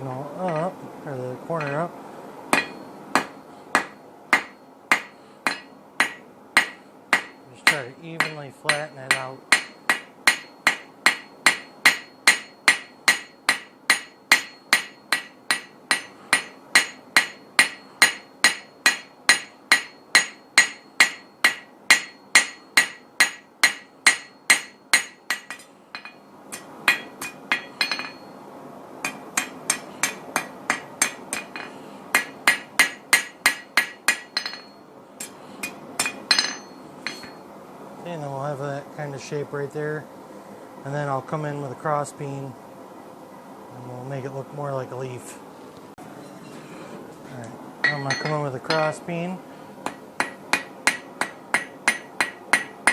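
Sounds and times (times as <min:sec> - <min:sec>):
hammer striking steel on anvil: 0:01.6 - 0:01.9, 0:02.5 - 0:28.3, 0:29.0 - 0:37.4, 0:47.8 - 0:49.0, 0:49.8 - 0:52.9.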